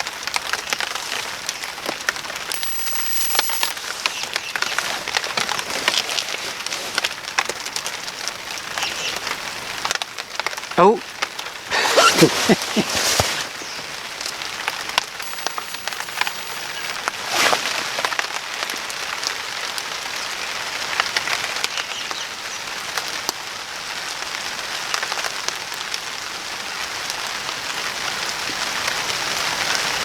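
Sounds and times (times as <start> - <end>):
sharp ticks: 2.6 - 3.8, 15.2 - 17.0.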